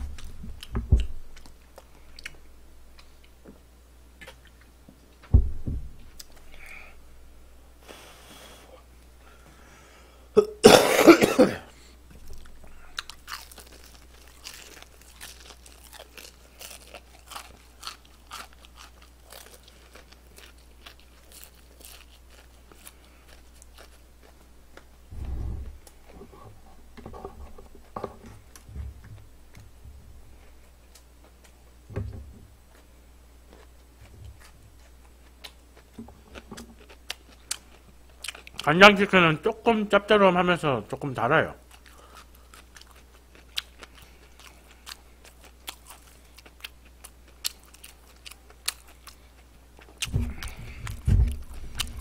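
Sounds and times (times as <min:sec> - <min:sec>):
low thumps: 0:00.0 - 0:01.4, 0:05.2 - 0:06.5, 0:25.1 - 0:30.3, 0:50.0 - 0:52.0
chewing crispy fried chicken: 0:12.2 - 0:25.0, 0:32.7 - 0:38.7, 0:41.6 - 0:52.0.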